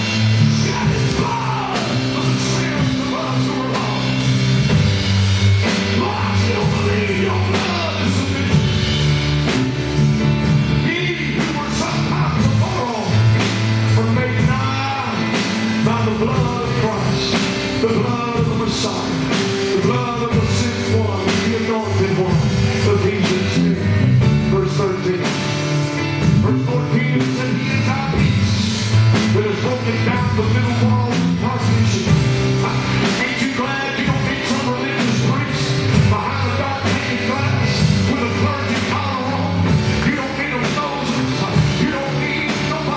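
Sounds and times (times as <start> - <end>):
people singing: 0.0 - 4.3, 29.4 - 42.9
bass guitar: 0.0 - 42.9
drum kit: 0.0 - 42.9
piano: 0.0 - 42.9.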